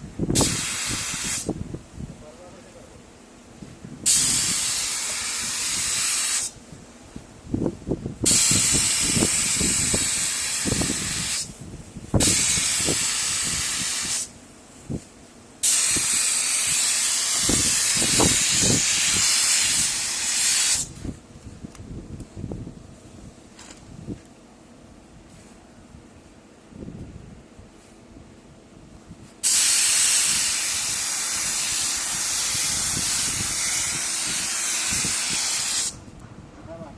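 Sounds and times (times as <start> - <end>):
spray gun hissing: 0.4 - 1.5, 4.1 - 6.6, 8.3 - 11.5, 12.2 - 14.3, 15.6 - 20.9, 29.4 - 36.0.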